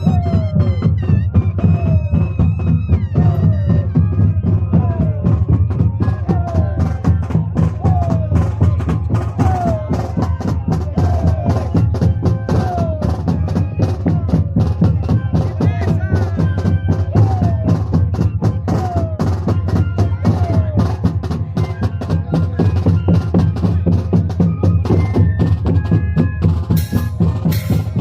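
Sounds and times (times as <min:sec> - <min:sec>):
flutes playing over drone: 0:00.0 - 0:28.0
steady drum beats: 0:00.0 - 0:28.0.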